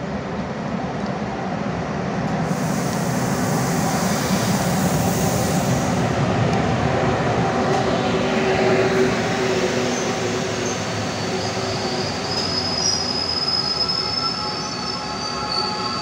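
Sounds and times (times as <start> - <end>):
locomotive hiss: 2.4 - 6.4, 8.8 - 16.0
electric locomotive rumbling past: 3.1 - 16.0.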